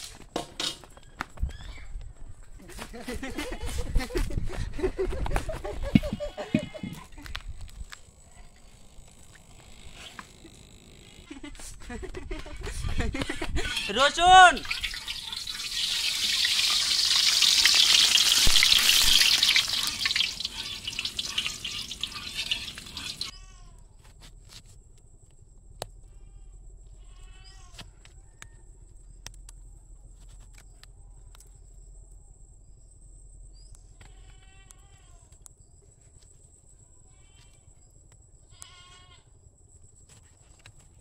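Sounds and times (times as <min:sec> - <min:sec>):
short bleats: 0:06.0 - 0:07.2, 0:26.1 - 0:27.8, 0:34.0 - 0:35.3, 0:37.1 - 0:37.7, 0:38.5 - 0:39.3
garlic sizzling in hot oil: 0:14.6 - 0:23.3.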